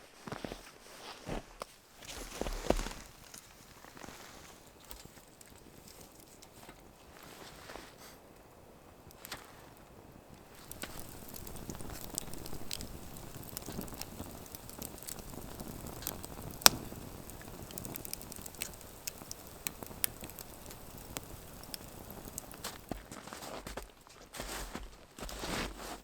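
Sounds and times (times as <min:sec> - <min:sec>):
wood fire crackling: 0:01.6 - 0:26.0
fire popping: 0:01.9 - 0:26.0.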